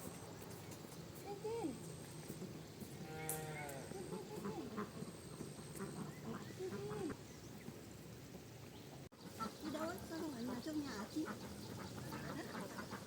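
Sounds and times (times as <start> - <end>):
ducks quacking: 4.0 - 7.2, 9.2 - 13.0.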